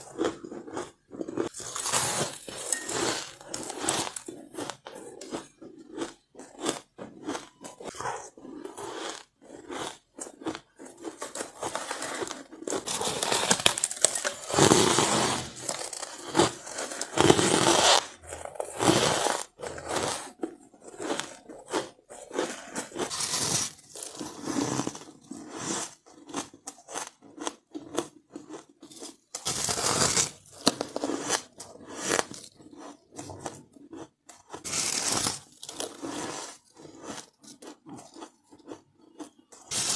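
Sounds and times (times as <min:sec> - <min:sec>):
ice crunching: 0:00.0 - 0:05.7, 0:10.2 - 0:25.1, 0:39.7 - 0:39.9.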